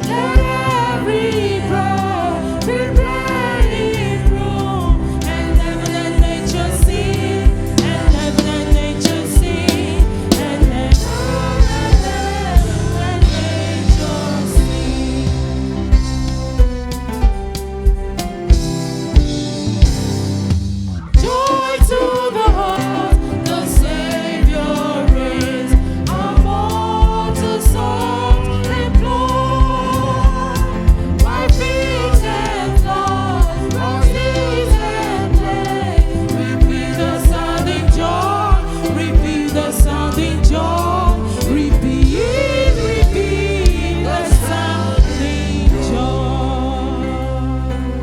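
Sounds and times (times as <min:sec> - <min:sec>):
voices singing gospel: 0:00.0 - 0:20.3, 0:21.0 - 0:48.0
band with drum beat and bass: 0:00.0 - 0:46.5.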